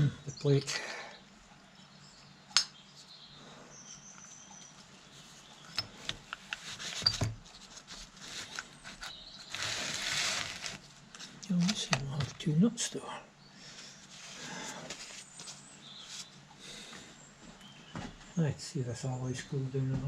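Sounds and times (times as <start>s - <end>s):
rustle: 6.3s - 11.4s.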